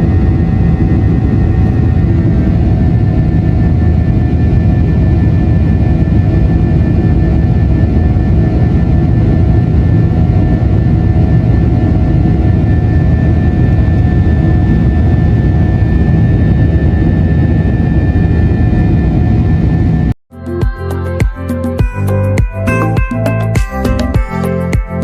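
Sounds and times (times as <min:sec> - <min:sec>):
jet engines heard from cabin: 0:00.0 - 0:25.0
music with plucked notes: 0:20.4 - 0:25.0.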